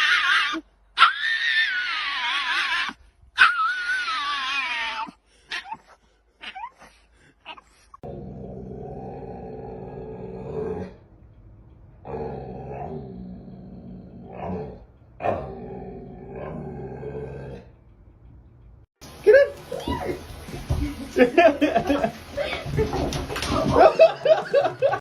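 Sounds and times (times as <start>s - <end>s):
dog yipping: 0.0s - 7.8s
dog growling: 7.5s - 11.1s, 12.0s - 17.8s.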